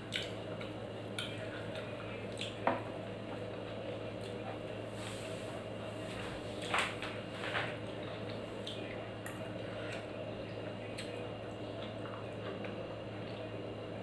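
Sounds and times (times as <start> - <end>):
wet chewing and smacking: 0.0 - 2.6.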